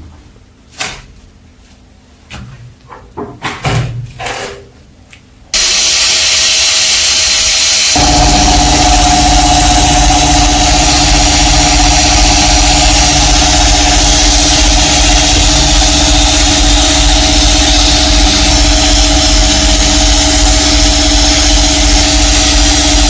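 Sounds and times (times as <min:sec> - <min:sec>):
power tool motor running: 0:05.6 - 0:23.0.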